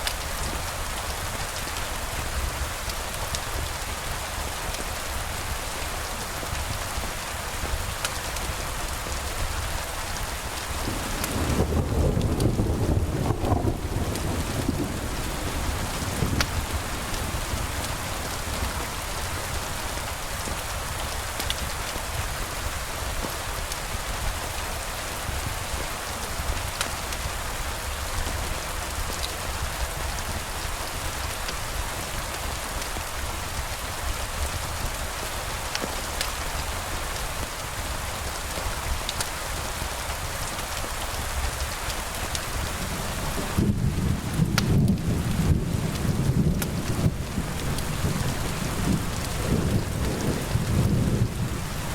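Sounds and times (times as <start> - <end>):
sharp ticks of raindrops: 0.0 - 51.9
steady rain hiss: 0.0 - 51.9.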